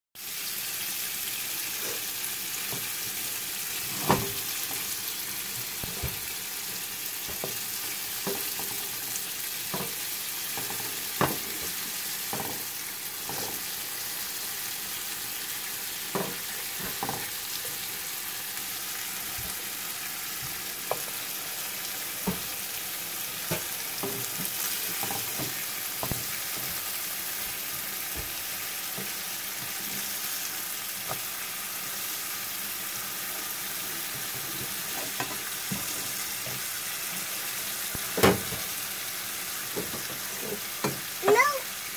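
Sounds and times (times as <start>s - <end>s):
burger patties sizzling in pan: 0.2s - 41.9s
spatula tapping and scraping pan: 5.7s - 13.7s, 16.1s - 17.9s, 20.3s - 21.2s, 22.2s - 22.6s, 23.4s - 30.1s, 34.0s - 36.7s.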